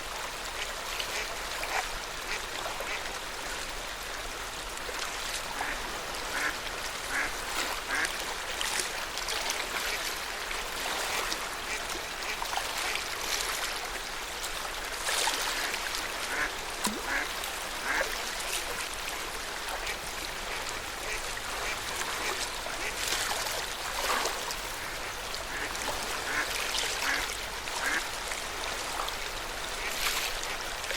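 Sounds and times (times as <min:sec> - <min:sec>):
lake water lapping: 0:04.7 - 0:30.9
ducks quacking: 0:05.6 - 0:07.3, 0:07.9 - 0:08.1, 0:16.3 - 0:16.5, 0:17.1 - 0:18.0, 0:24.8 - 0:28.0.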